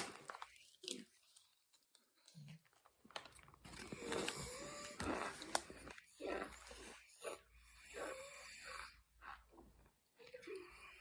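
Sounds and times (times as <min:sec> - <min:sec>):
person chewing and sucking: 0:03.7 - 0:08.4.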